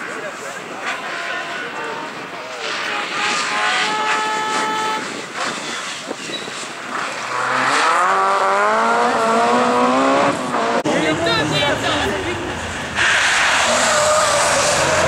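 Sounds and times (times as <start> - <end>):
rally car engine accelerating: 5.3 - 11.8.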